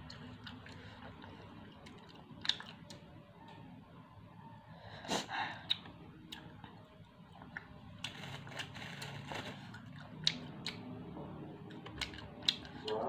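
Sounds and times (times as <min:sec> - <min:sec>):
crunchy chewing: 0:07.4 - 0:10.8
bite into crispy snack: 0:08.0 - 0:09.9.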